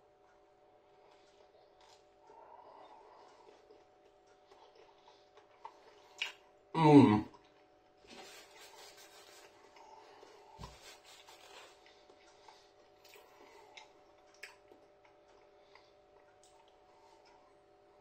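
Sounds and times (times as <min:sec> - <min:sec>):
faint steady hum: 0:00.0 - 0:18.0
mouth chewing clicks and smacks: 0:03.2 - 0:06.4, 0:11.8 - 0:17.4.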